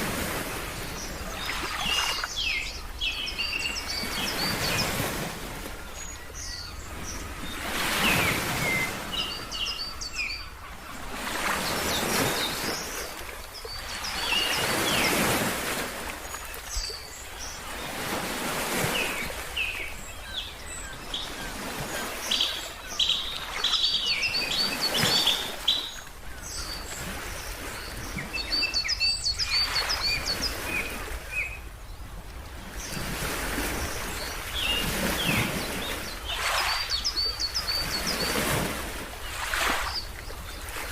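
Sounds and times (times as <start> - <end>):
birds chirping: 0.6 - 32.0, 33.8 - 40.8
ocean waves washing in: 11.1 - 19.8.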